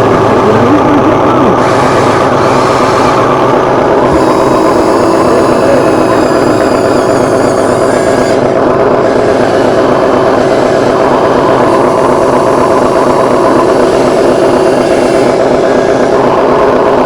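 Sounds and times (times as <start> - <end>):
faint wavering high whine: 0.0 - 8.6
motors and hydraulic pump running: 0.0 - 17.0.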